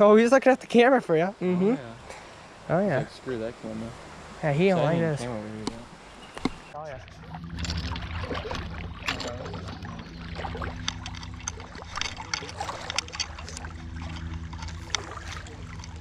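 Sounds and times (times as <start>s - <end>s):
water splashing in a creek: 1.9s - 16.0s
knocks and rustles: 6.4s - 16.0s
steady low rumble: 6.8s - 16.0s.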